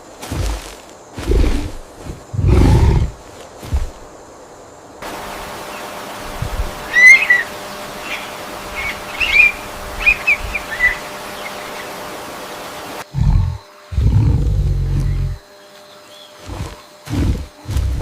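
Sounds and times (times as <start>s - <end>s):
rainforest hiss: 0.0s - 18.0s
big cat roaring: 2.3s - 3.2s, 13.1s - 15.4s
birds chirping: 5.0s - 18.0s.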